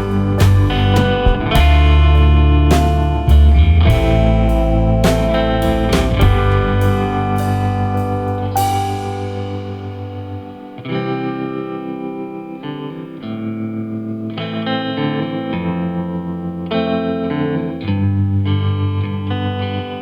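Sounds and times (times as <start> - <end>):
guitar chords with effects: 0.0 - 20.0.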